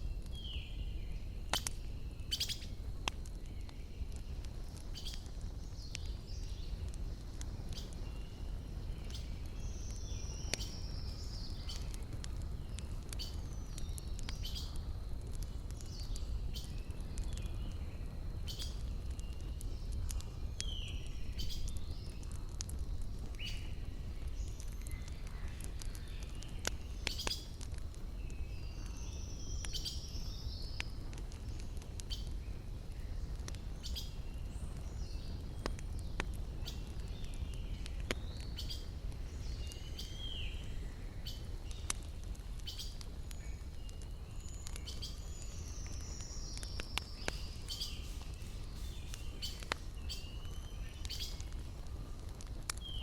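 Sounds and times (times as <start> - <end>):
campfire crackling and popping: 0.0 - 53.0
birds chirping: 33.3 - 52.1.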